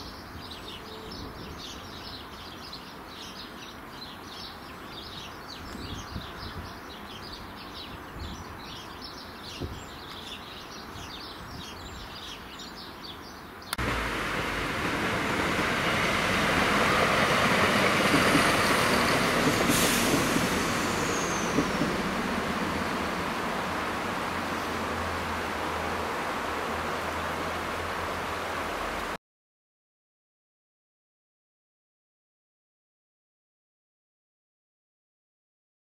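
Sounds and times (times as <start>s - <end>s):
birds chirping: 0.0s - 27.2s
train wheels rushing on rail: 13.8s - 26.2s
low diesel train rumble: 13.8s - 29.0s.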